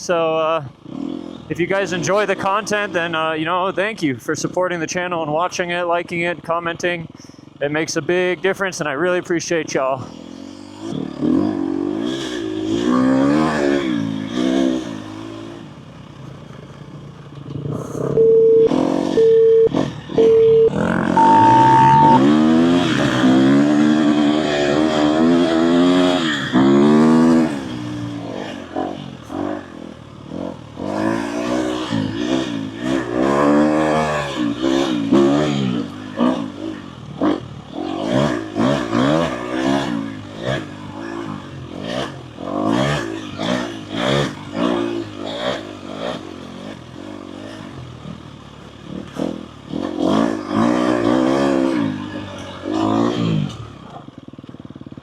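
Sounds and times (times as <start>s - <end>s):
dirt bike engine revving: 10.0s - 15.7s, 18.7s - 48.2s, 48.9s - 53.6s.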